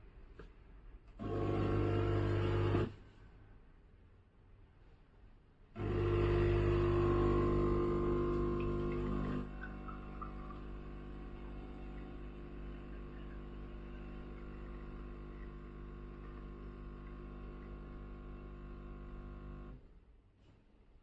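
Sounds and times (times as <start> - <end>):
espresso machine pump buzzing: 1.2 - 2.9, 5.8 - 19.8.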